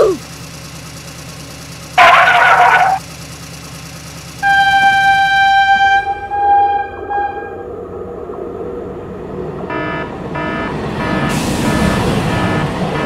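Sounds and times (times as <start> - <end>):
low engine rumble: 0.0 - 13.0
short horn blast: 4.4 - 7.7
diesel locomotive horn: 4.4 - 7.8, 9.6 - 13.0.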